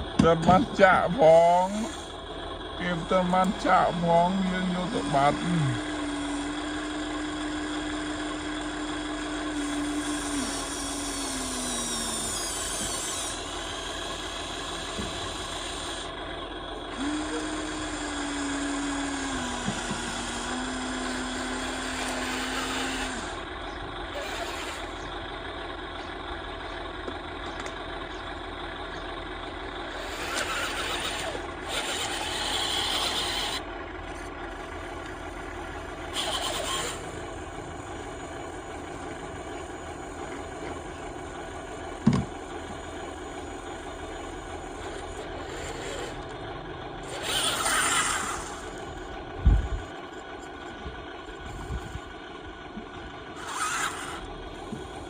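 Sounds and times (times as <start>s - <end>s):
small electric motor whining: 0.8s - 25.2s, 29.8s - 46.4s, 47.0s - 52.2s, 53.2s - 55.0s
gritty scraping: 29.9s - 37.4s, 53.4s - 54.9s.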